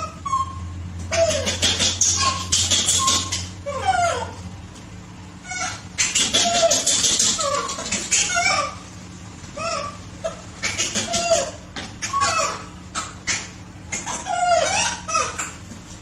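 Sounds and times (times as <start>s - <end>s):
monkey chattering: 0.0s - 4.4s, 5.4s - 8.9s, 9.6s - 15.7s
monkey squeaky calls: 0.0s - 4.4s, 5.4s - 8.9s, 9.5s - 15.7s.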